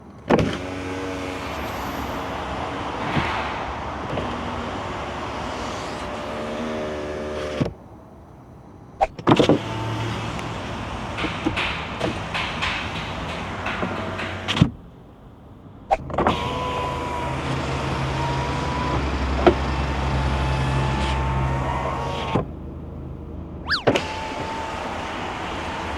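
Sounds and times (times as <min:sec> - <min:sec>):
loud outside noise: 0:00.0 - 0:25.9
car power window motor whining: 0:00.3 - 0:08.0, 0:09.1 - 0:12.4, 0:15.9 - 0:22.8, 0:23.6 - 0:25.9
thump: 0:02.6 - 0:06.6
clicks: 0:09.0 - 0:14.9.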